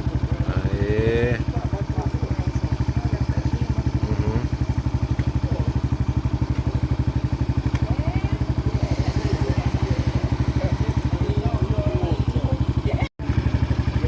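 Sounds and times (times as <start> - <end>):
small engine idling: 0.0 - 14.0
faint crowd voices: 6.6 - 13.1.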